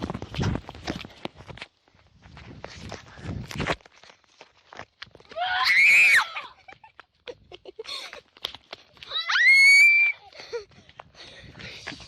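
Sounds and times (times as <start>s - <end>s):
quick footsteps: 0.0s - 12.0s
child screaming: 5.3s - 6.6s, 9.1s - 10.2s.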